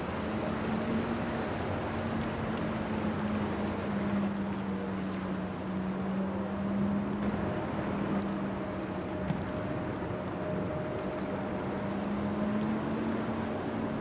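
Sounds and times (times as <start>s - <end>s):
ship diesel engine humming: 2.7s - 12.6s.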